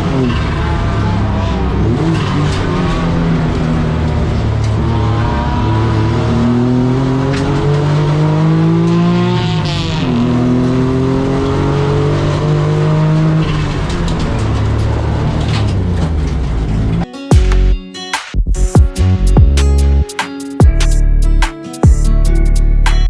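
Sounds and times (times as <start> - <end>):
small car engine accelerating: 0.0 - 17.0
music: 17.0 - 23.0.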